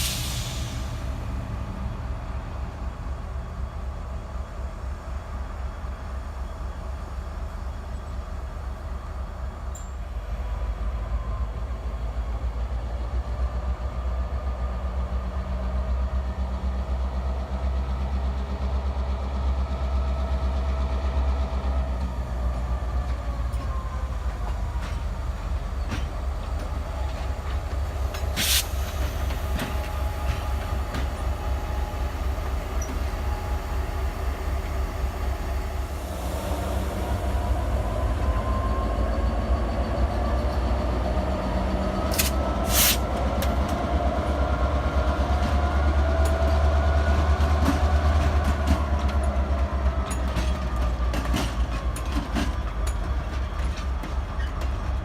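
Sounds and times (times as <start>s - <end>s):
freight train rumbling past: 0.0s - 55.0s
wheels clicking over rail joints: 45.3s - 55.0s.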